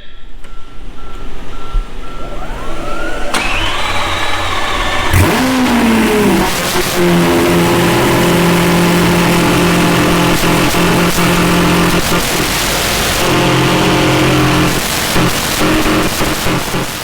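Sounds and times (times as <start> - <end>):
car engine starting and idling: 0.4 - 17.0
starter motor whine: 0.5 - 17.0.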